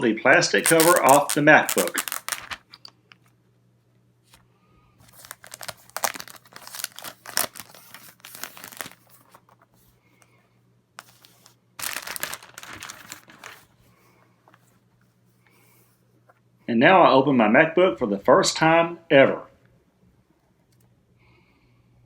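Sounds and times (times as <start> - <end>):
plastic film peeling and crinkling: 0.0 - 3.2, 5.0 - 9.7, 11.0 - 13.8.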